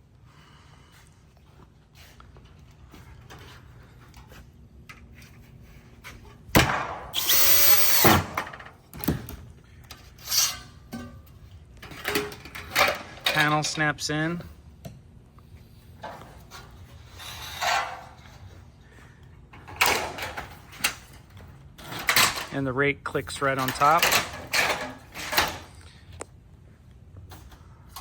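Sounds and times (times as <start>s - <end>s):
power screw gun driving screw: 7.2s - 8.4s.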